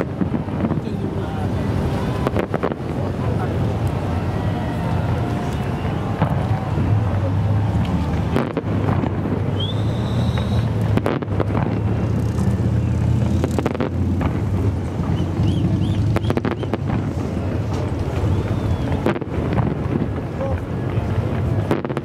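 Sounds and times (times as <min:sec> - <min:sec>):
fireworks bursting: 0:00.0 - 0:22.0
firework whistle: 0:08.1 - 0:13.8, 0:15.0 - 0:17.0, 0:18.1 - 0:19.3.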